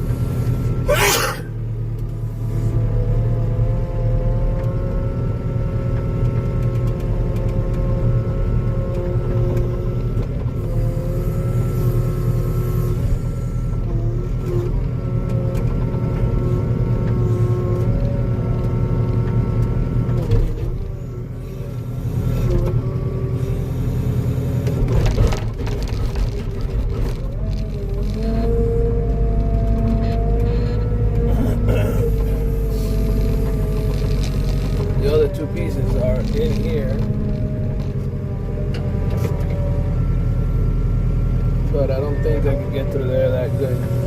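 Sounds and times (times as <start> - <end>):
diesel engine running: 0.0 - 44.0
hydraulic whine: 10.4 - 14.8, 20.2 - 25.9, 26.6 - 40.6, 42.0 - 44.0.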